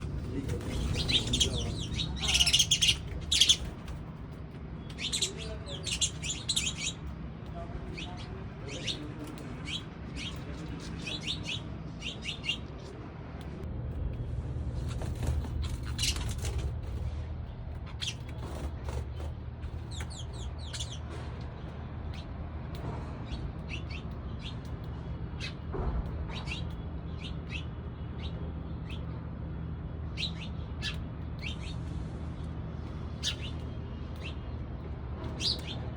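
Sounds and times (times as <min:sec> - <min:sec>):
sparrows chirping: 0:00.0 - 0:13.6, 0:14.8 - 0:35.9.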